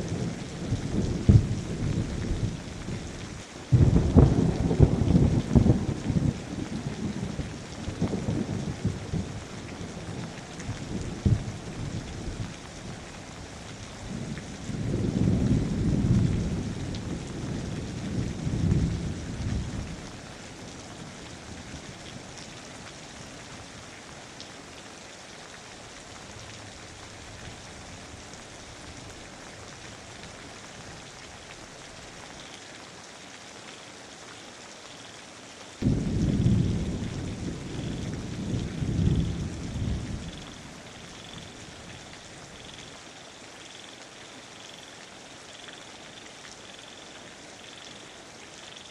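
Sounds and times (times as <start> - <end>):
rolling thunder: 0.0 - 2.6, 3.7 - 9.4, 10.0 - 12.4, 14.1 - 19.9, 35.8 - 40.4
steady rain falling: 0.0 - 48.9.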